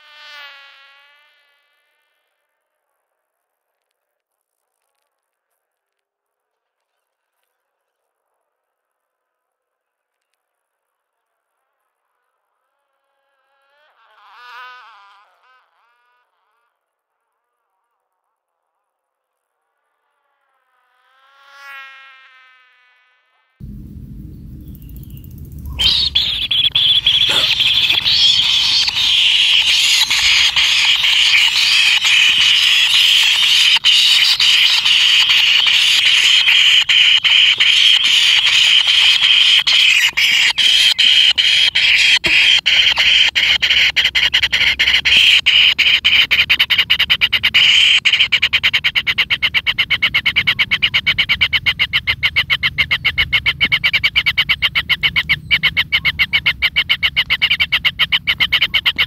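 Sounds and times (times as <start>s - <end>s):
nestlings begging chorus: 23.6s - 59.0s.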